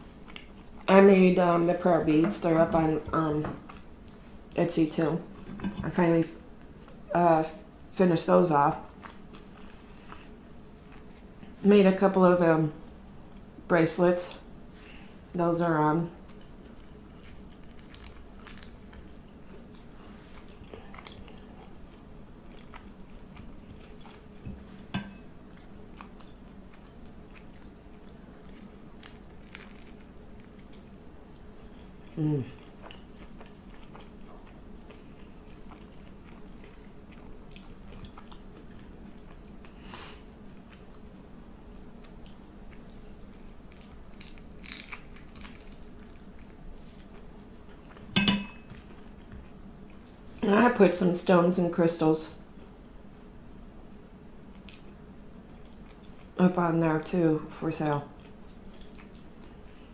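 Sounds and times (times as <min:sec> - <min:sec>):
chewing and crunching food: 0:00.0 - 0:02.5, 0:08.7 - 0:11.6, 0:15.7 - 0:50.4, 0:54.4 - 0:56.6, 0:57.8 - 0:59.9.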